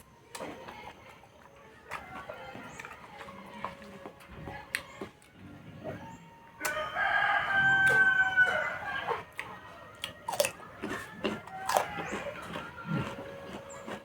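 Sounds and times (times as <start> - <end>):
chewing and biting clicks: 0.0 - 14.0
rooster crowing: 6.6 - 9.2.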